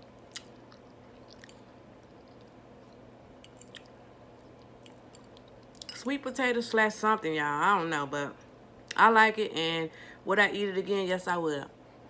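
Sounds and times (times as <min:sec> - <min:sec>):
low steady hum: 0:00.0 - 0:12.0
faint chewing: 0:00.2 - 0:06.0.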